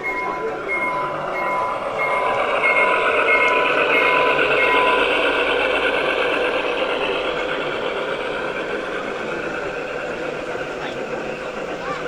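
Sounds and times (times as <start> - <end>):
electronic beeping: 0.0 - 5.3
steady hubbub: 0.0 - 12.0.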